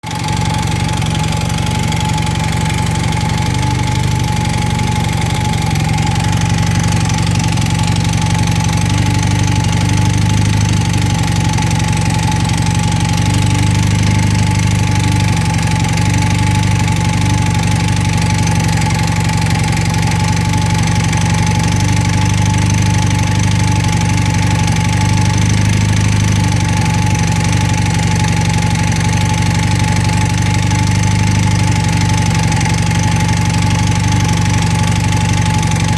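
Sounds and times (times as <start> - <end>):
steady whine: 0.0 - 10.2
motorcycle engine idling: 0.0 - 35.9.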